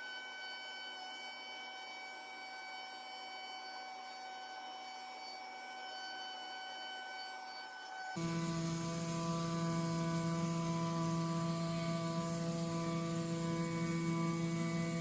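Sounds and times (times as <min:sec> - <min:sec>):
high-pitched machine whine: 0:00.0 - 0:15.0
air hiss: 0:08.2 - 0:15.0.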